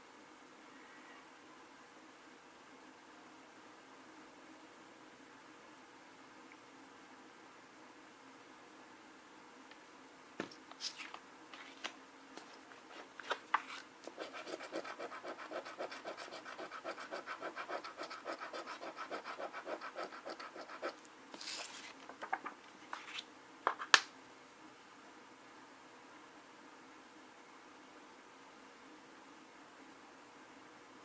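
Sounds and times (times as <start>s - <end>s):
scratching lottery ticket: 14.1s - 21.9s.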